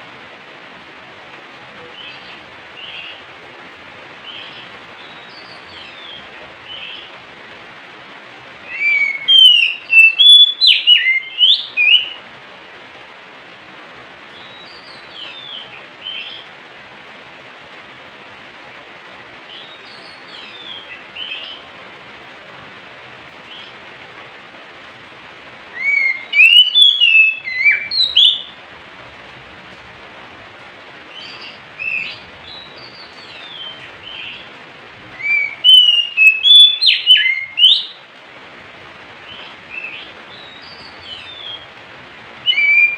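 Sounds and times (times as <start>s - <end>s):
steady hiss: 0.0s - 42.9s
bird singing whistled notes: 8.7s - 12.2s, 25.8s - 28.6s, 31.1s - 34.4s, 35.2s - 38.0s, 39.3s - 41.7s, 42.4s - 42.9s.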